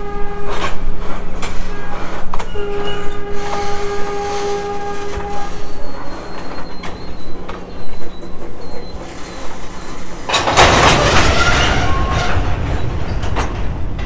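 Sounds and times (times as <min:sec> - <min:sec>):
train wheels clacking on rails: 0:00.0 - 0:14.0
faint high squeal: 0:01.7 - 0:10.3.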